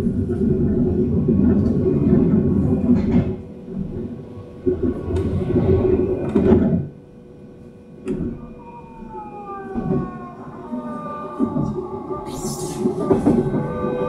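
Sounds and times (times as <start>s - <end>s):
train rumble: 0.0s - 14.0s
traction motor whine: 5.1s - 14.0s.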